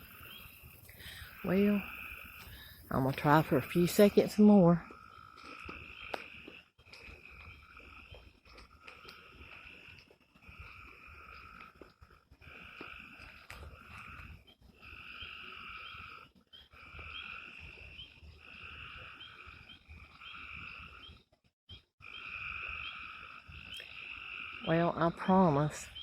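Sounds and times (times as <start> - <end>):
frogs trilling: 0.0 - 21.3, 22.0 - 26.0.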